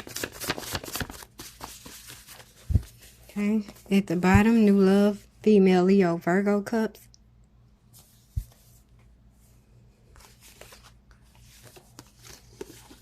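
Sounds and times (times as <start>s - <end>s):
cards rustling and tapping: 0.0s - 4.6s, 10.2s - 13.0s.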